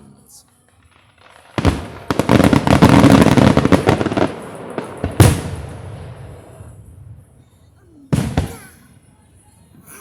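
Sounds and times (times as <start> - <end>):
fireworks crackling: 0.0 - 9.8
firework booms: 0.9 - 7.4, 8.1 - 8.6.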